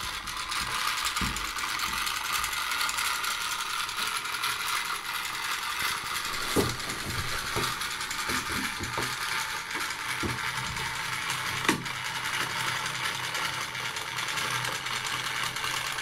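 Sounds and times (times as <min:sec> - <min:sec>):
clockwork motor whirring: 0:00.0 - 0:16.0
ratchet-like gear clicking: 0:00.0 - 0:16.0
knocks: 0:06.4 - 0:09.2.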